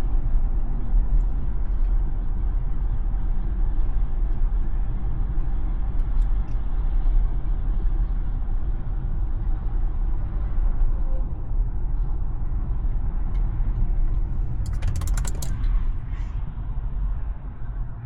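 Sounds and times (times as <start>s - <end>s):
rapid clicking: 14.5s - 15.6s.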